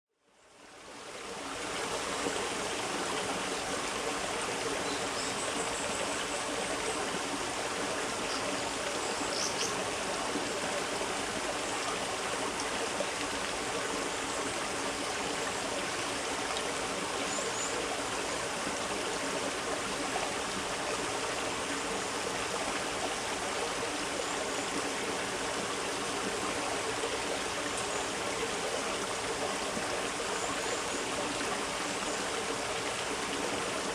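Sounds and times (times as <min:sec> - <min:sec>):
stream babbling: 0:00.6 - 0:33.9.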